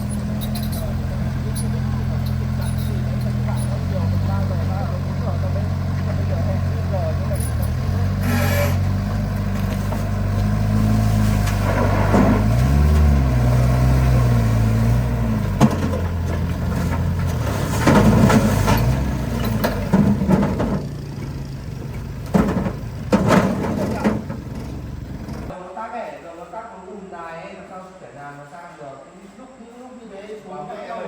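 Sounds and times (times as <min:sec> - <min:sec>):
truck engine revving: 0:00.0 - 0:25.5
short loud noises: 0:08.2 - 0:08.9.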